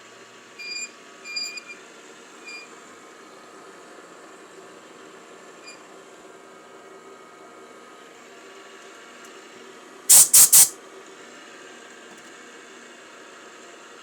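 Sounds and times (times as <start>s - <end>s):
compressed air blasts: 10.1s - 10.8s.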